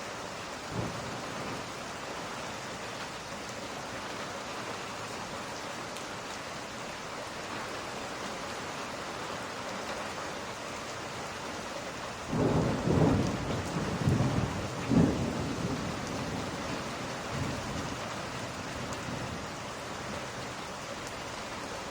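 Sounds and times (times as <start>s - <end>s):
steady rain: 0.0s - 21.9s
thunder rumbling: 0.7s - 1.7s, 12.3s - 19.4s.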